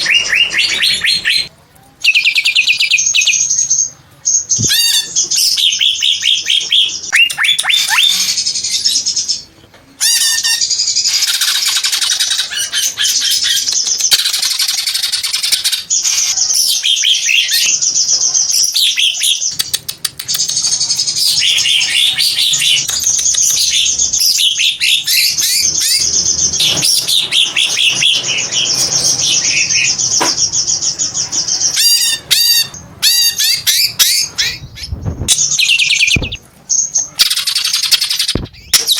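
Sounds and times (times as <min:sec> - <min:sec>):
bird singing whistles and trills: 0:31.7 - 0:38.9.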